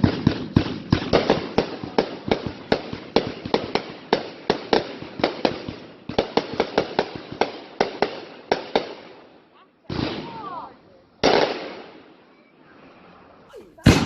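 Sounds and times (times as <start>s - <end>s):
fireworks banging: 0.0s - 12.2s, 13.5s - 14.0s.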